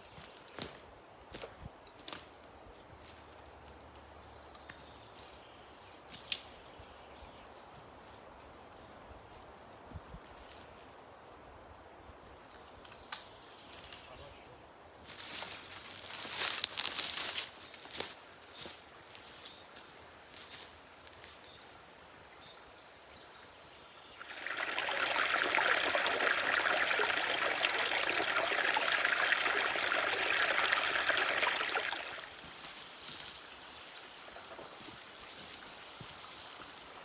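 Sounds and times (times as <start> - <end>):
water running: 24.2 - 32.5.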